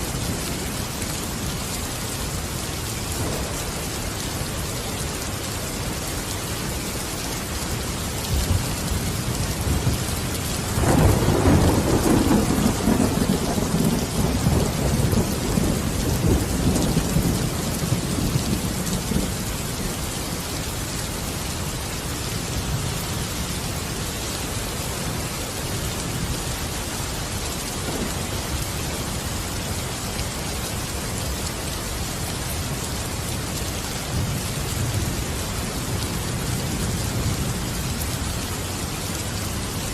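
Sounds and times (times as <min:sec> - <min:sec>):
heavy rain hissing: 0:00.0 - 0:39.9
thunder rumbling: 0:03.1 - 0:04.6, 0:08.3 - 0:19.7, 0:27.6 - 0:29.2.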